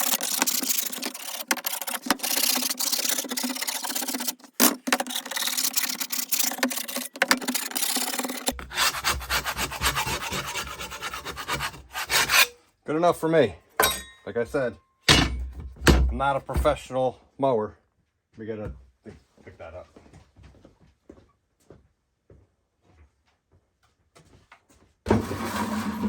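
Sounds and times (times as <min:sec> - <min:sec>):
putty knife scraping metal: 0:00.0 - 0:12.6.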